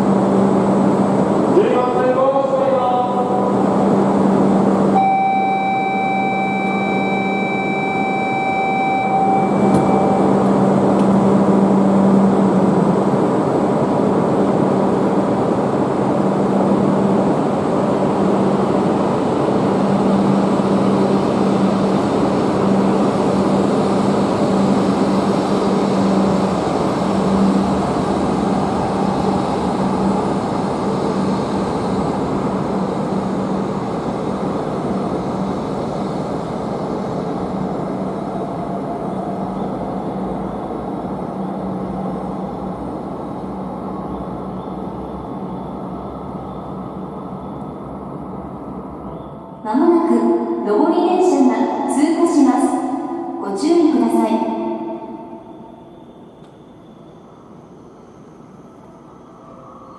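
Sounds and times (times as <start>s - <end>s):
train running hum: 0.0s - 59.9s
electronic warning tone: 4.9s - 10.6s.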